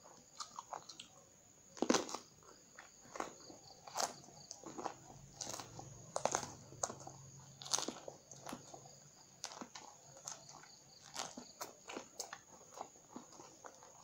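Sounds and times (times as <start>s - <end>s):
crisp crunching bites: 1.8s - 14.0s.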